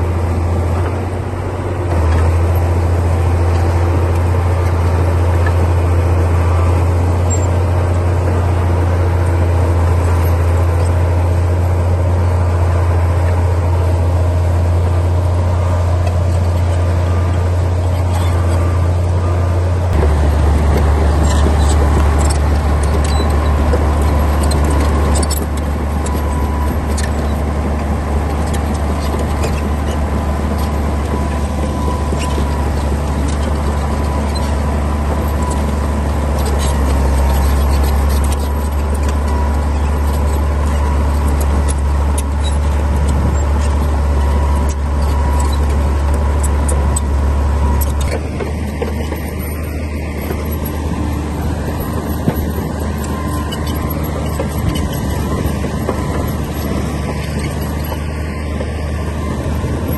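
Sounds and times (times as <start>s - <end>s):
bulldozer diesel engine running: 0.0s - 59.9s
sharp clicks and clanks: 19.9s - 59.8s.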